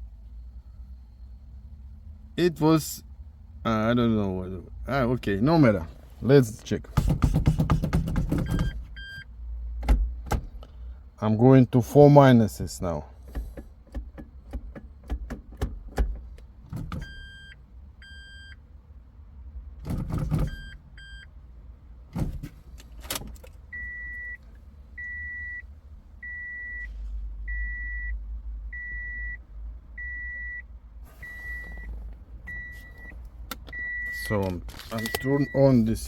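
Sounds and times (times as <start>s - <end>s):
low steady hum: 0.0s - 14.8s, 15.4s - 36.0s
car warning beeper short beeps: 8.3s - 9.3s, 17.0s - 18.6s, 20.2s - 21.4s, 23.7s - 24.4s, 25.0s - 36.0s
clicks: 31.6s - 35.5s.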